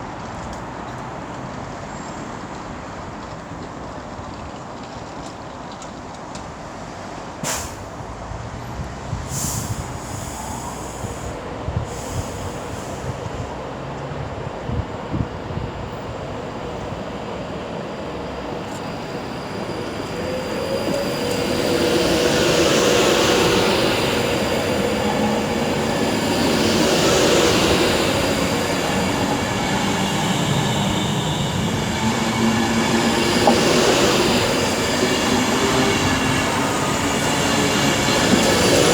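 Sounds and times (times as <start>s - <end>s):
train running: 0.0s - 38.9s
train wheel squeal: 15.7s - 38.9s.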